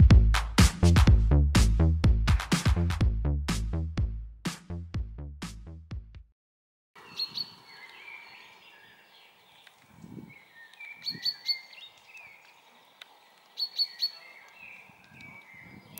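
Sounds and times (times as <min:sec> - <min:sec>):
low muffled thumps: 0:00.0 - 0:06.3
bright high bird chirp: 0:07.0 - 0:15.9
songbirds singing: 0:07.0 - 0:15.9.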